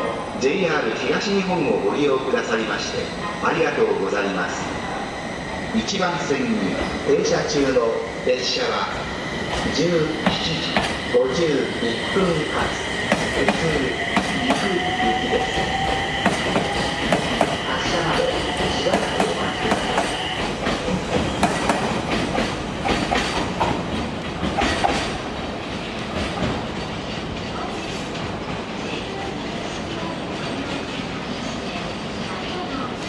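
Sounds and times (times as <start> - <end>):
train running rumble: 5.8 - 28.7
train wheels clacking over rail joints: 12.6 - 28.0.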